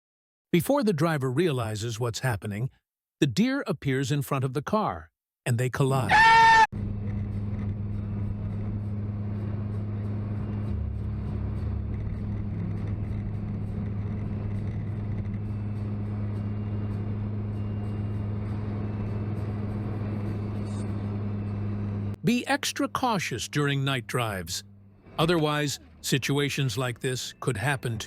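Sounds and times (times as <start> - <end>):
car engine and road noise: 6.7 - 28.0.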